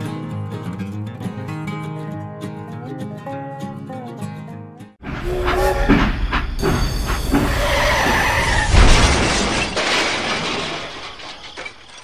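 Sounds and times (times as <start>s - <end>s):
train rumbling on rails: 5.0s - 8.6s
loud crash: 7.4s - 12.0s.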